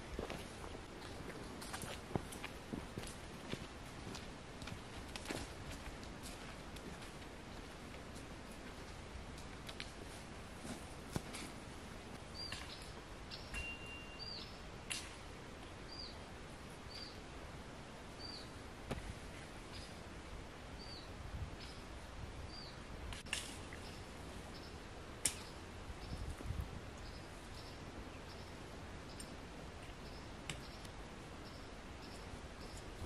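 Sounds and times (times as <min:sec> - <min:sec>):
small bird chirping: 0:12.4 - 0:14.6.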